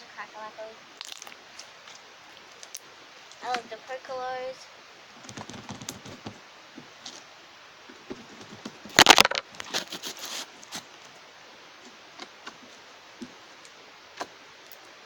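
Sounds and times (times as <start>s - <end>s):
slime crackling and popping: 1.0s - 1.4s.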